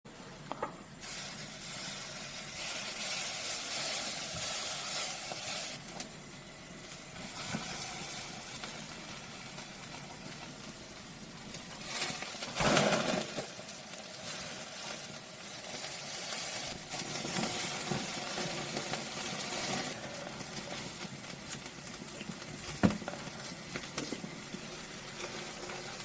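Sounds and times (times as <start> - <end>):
hot food sizzling: 0.2 - 26.0.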